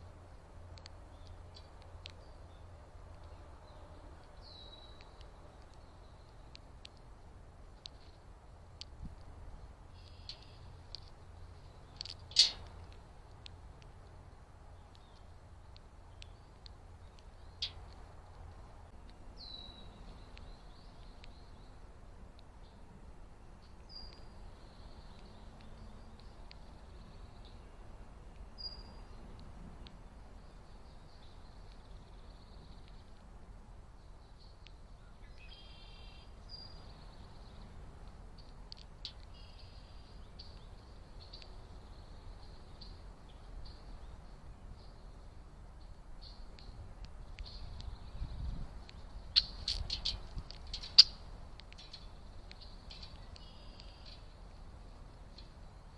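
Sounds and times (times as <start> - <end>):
tiny ticks: 0.0 - 35.6, 36.5 - 55.9
low steady rumble: 0.0 - 55.9
small birds chirping: 0.0 - 55.9
high bird chirps: 34.3 - 37.5, 47.4 - 51.2, 51.8 - 54.3.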